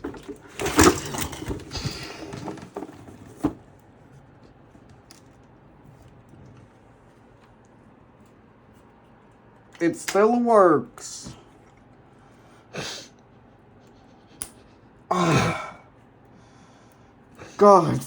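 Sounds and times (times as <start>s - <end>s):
rustling of computer parts: 0.0s - 9.7s.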